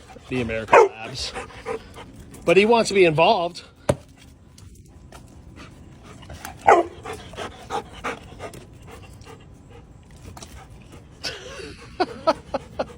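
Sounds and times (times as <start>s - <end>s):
dog panting: 0.0s - 2.9s, 5.4s - 12.9s
dog yelping: 0.7s - 1.1s, 6.6s - 7.1s.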